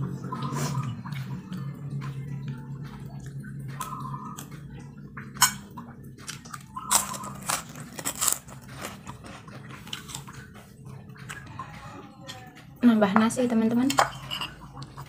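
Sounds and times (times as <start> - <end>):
person chewing food: 0.4 - 12.6
metal spoon scraping a plate: 13.9 - 14.7.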